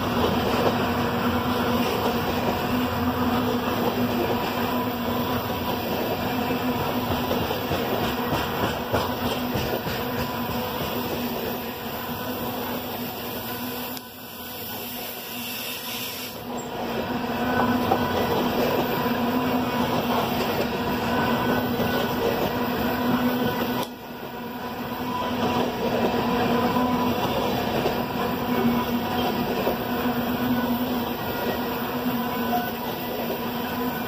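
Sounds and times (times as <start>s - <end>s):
freight train wheels rumbling on rail: 0.0s - 34.0s.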